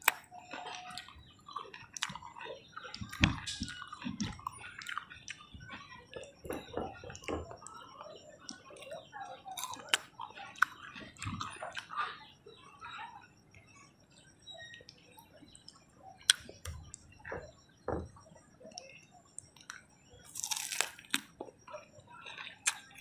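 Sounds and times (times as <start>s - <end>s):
mouth clicks and crackles: 0.0s - 12.0s, 14.6s - 17.6s, 18.7s - 23.0s
close-up chewing: 0.0s - 13.7s, 18.7s - 23.0s.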